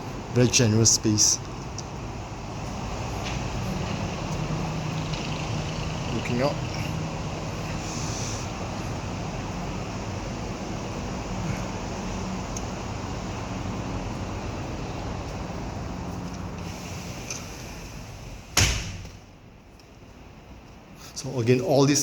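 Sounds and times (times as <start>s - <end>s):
distant road traffic: 0.0s - 22.0s
door shutting: 16.6s - 19.3s.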